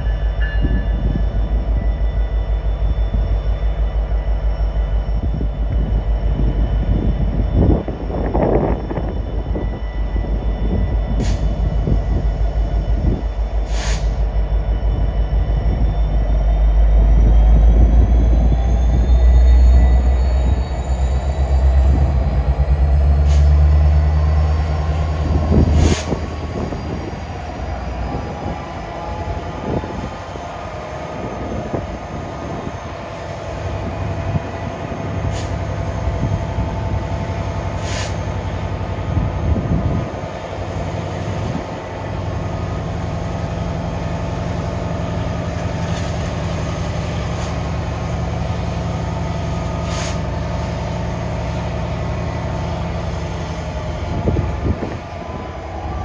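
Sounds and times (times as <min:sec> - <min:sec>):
high wheel squeal: 0:00.0 - 0:39.0
diesel locomotive engine rumble: 0:00.0 - 0:56.0.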